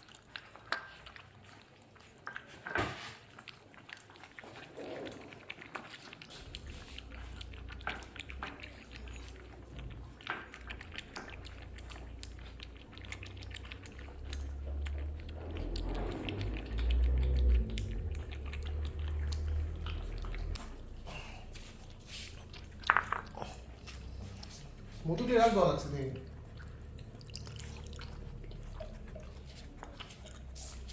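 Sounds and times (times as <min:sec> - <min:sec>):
puppies lapping milk: 0:00.0 - 0:30.9
low rumble: 0:06.4 - 0:30.9.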